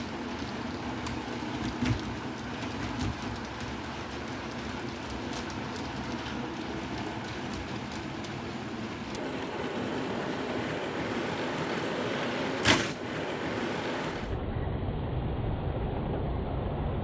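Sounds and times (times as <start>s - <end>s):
model trains rumbling on track: 0.0s - 14.4s.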